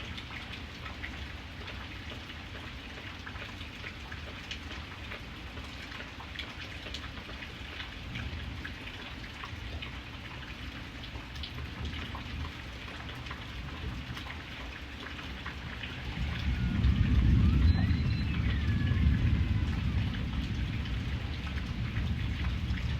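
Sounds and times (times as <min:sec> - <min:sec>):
raindrops clicking on a surface: 0:00.0 - 0:22.9
steady rain falling: 0:00.0 - 0:22.9
thunder rumbling: 0:15.4 - 0:22.9.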